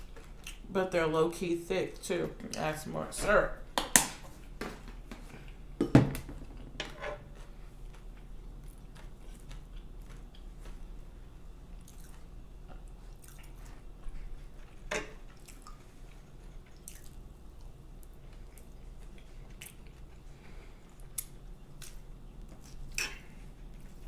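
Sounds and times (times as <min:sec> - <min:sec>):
wet chewing sounds: 0:00.0 - 0:00.7, 0:07.3 - 0:24.0.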